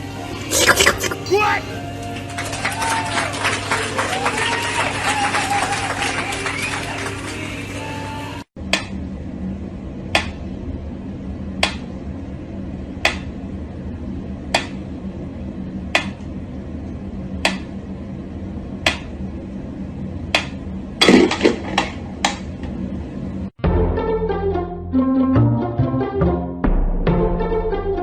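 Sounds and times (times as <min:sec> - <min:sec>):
steady low hum: 0:08.6 - 0:21.1.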